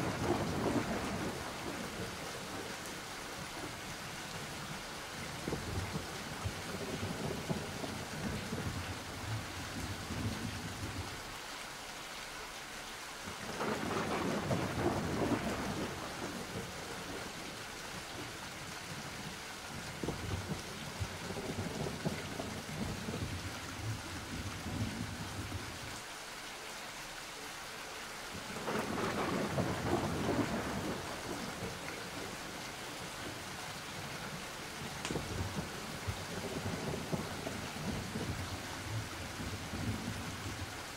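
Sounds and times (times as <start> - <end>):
thunder rumbling: 0.0 - 2.7, 5.4 - 11.1, 13.5 - 17.4, 19.8 - 25.8, 28.5 - 40.9
steady rain: 0.0 - 40.9.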